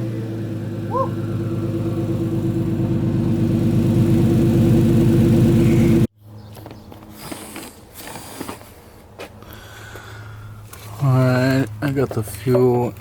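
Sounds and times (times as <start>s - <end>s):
car engine running: 0.0s - 6.1s.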